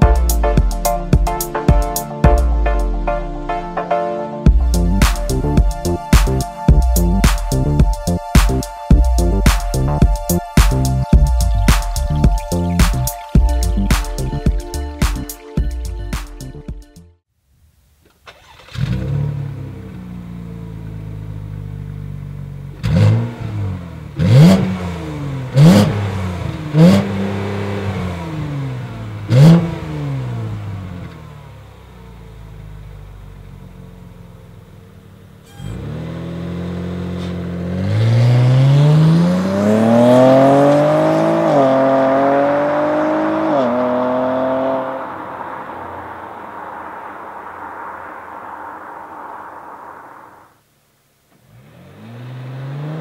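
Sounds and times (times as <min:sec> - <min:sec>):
car engine revving and accelerating: 0:18.3 - 0:33.7, 0:35.5 - 0:50.5, 0:51.4 - 0:53.0.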